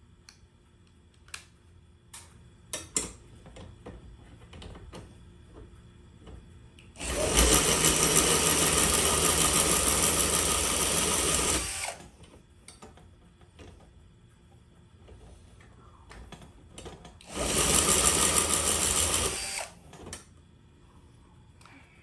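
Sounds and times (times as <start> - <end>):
power drill running: 7.0 - 12.1, 17.2 - 19.8.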